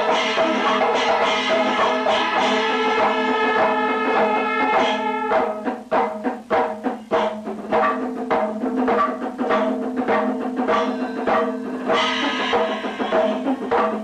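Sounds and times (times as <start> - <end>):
held pitched horn tone: 0.0 - 5.6
cymbals: 0.0 - 14.0
fast hand drum strokes: 0.0 - 14.0.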